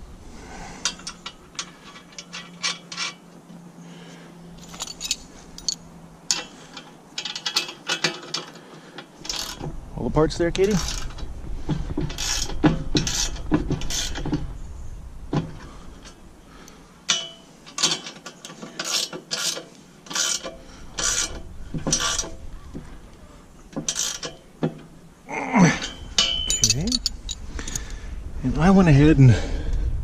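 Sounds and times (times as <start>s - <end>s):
hand ratchet wrench ratcheting: 9.2s - 9.6s, 12.1s - 14.2s, 17.1s - 22.4s, 23.8s - 24.4s.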